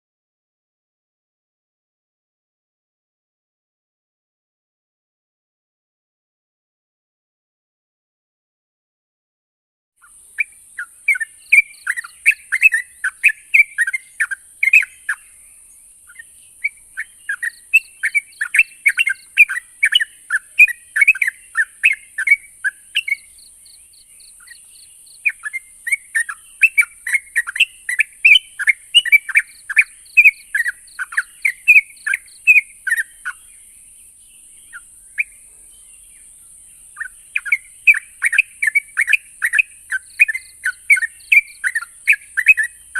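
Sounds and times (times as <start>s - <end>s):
bird singing chattering notes: 10.0s - 42.9s.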